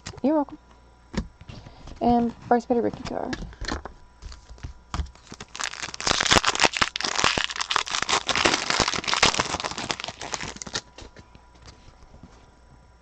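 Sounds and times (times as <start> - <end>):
foil wrapper crinkling and tearing: 4.3 - 11.2.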